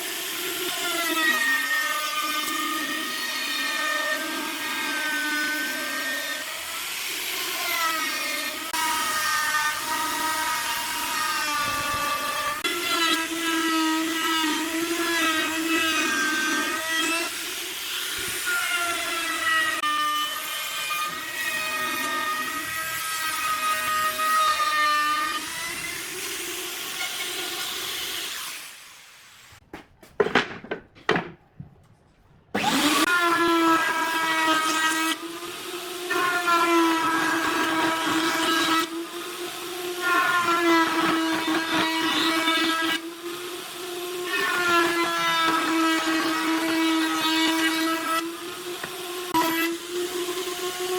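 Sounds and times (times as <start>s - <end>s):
power tool cutting wood: 0.0s - 29.6s, 32.6s - 50.9s
power tool motor whining: 32.6s - 50.9s.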